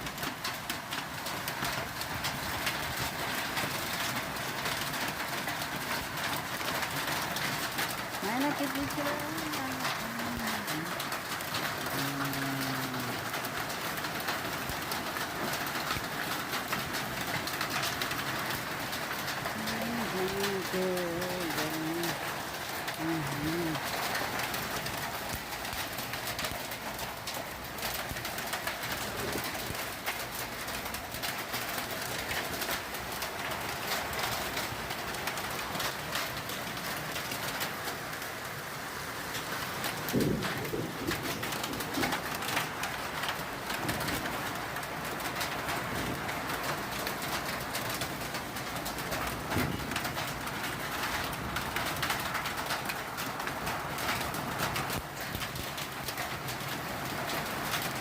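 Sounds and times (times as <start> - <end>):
hailstones clicking on surfaces: 0.0 - 58.0
heavy rain hissing: 7.7 - 30.8, 37.6 - 46.6.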